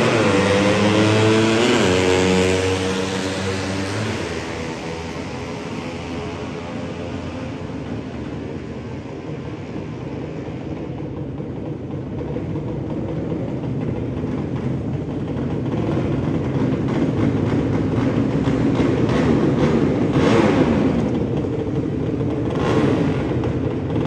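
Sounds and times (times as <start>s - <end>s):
motorcycle engines running: 0.0s - 24.0s.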